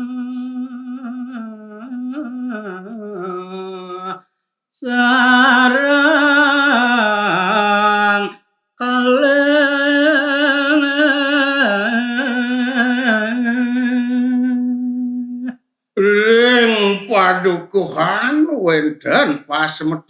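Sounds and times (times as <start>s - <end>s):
man singing unaccompanied: 0.0s - 18.3s.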